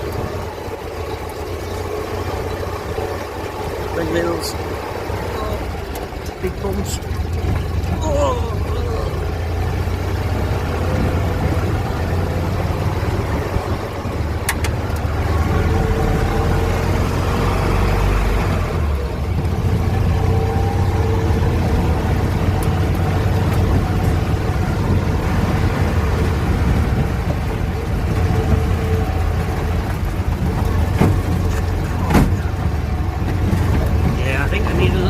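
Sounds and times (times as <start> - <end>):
engine droning with whine: 0.0 - 35.0.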